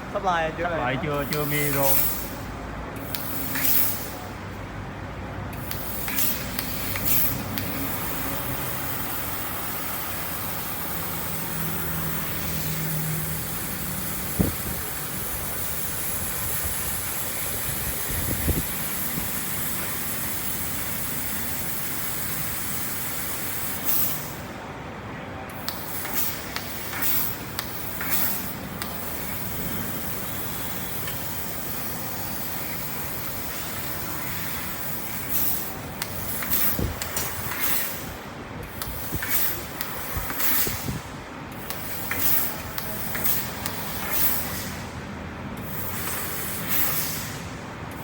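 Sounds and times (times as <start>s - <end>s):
laser cutter steady hiss: 0.0s - 4.6s, 5.6s - 48.0s
sharp hissing bursts: 1.2s - 4.3s, 5.6s - 24.6s, 25.5s - 45.0s, 45.6s - 48.0s.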